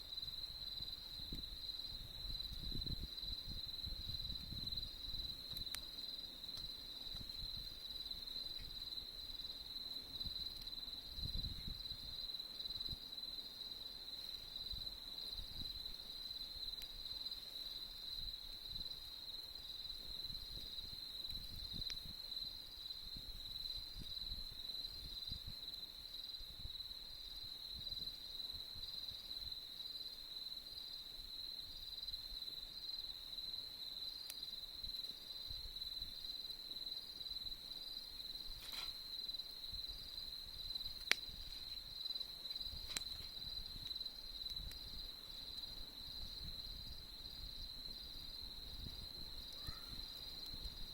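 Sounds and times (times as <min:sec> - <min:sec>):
faint isolated clicks: 0:41.0 - 0:41.3.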